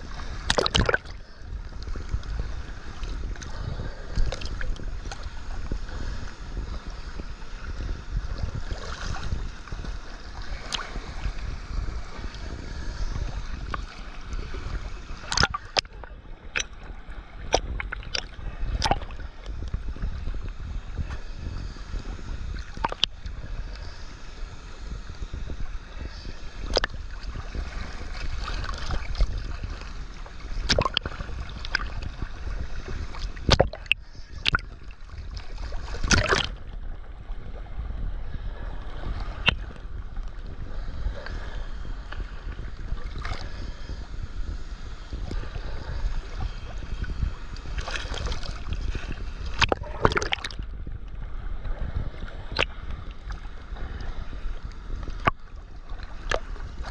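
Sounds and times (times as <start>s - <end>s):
wind rumble on microphone: 0.0s - 56.9s.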